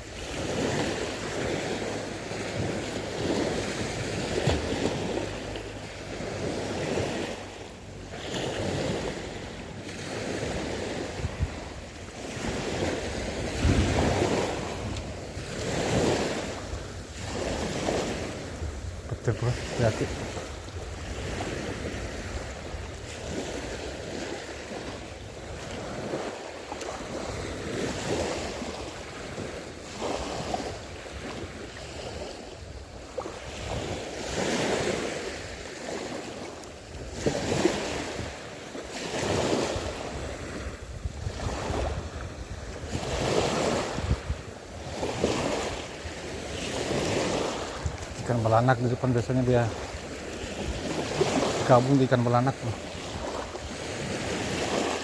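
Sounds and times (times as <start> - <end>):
sea waves washing: 0.0 - 55.0
wind buffeting microphone: 10.5 - 26.4, 39.2 - 45.8, 46.4 - 48.6.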